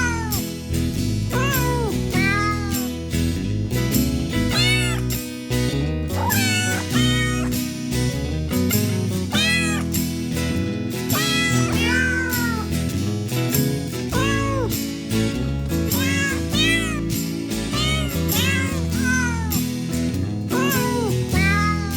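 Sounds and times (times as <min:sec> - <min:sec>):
cat meowing: 0:00.0 - 0:00.4, 0:01.3 - 0:02.9, 0:04.5 - 0:05.1, 0:06.2 - 0:07.5, 0:09.3 - 0:09.9, 0:11.1 - 0:12.7, 0:14.1 - 0:14.7, 0:16.0 - 0:17.1, 0:17.7 - 0:19.6, 0:20.5 - 0:21.9.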